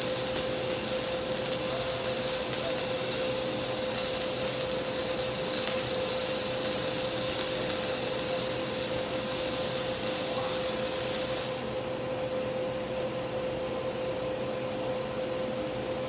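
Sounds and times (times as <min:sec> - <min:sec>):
welding arc crackling and hissing: 0:00.0 - 0:11.9
steady hum: 0:00.0 - 0:16.0.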